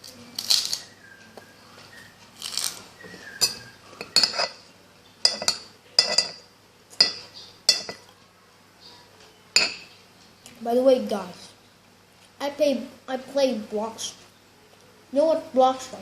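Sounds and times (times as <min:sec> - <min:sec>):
cutlery clinking on a plate: 0:03.4 - 0:04.6, 0:05.2 - 0:06.4, 0:07.0 - 0:08.1, 0:09.6 - 0:09.9.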